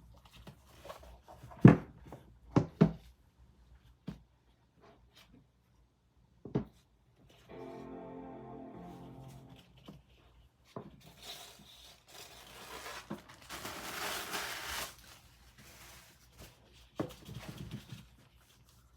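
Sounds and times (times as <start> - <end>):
packaging crinkling and tearing: 11.2 - 16.7.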